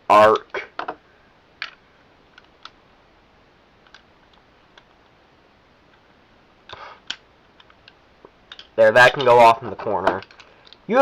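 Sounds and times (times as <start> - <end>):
plastic parts clicking: 3.8 - 4.9, 6.7 - 10.8.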